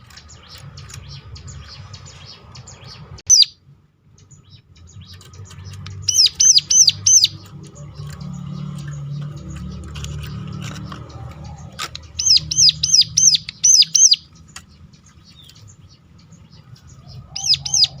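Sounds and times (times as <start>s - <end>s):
faint bird chirps: 0.0s - 9.3s, 11.5s - 18.0s
bird singing high notes: 3.3s - 3.6s, 12.1s - 14.3s.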